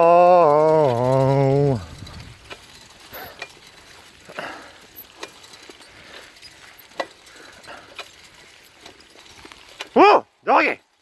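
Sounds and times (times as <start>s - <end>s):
bicycle rattling: 0.0s - 11.0s.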